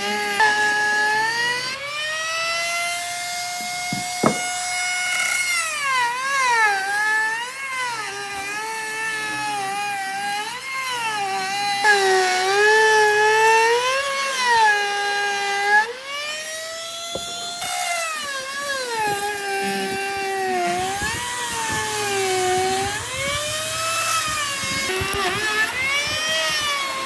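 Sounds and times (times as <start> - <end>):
power tool motor whining: 0.0 - 27.0
sharp knock: 3.9 - 4.6.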